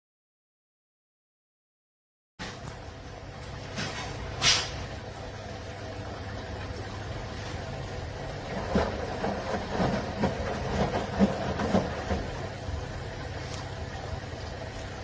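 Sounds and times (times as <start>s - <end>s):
washing machine hum: 2.4s - 15.0s
irregular knocks and thumps: 8.5s - 12.4s.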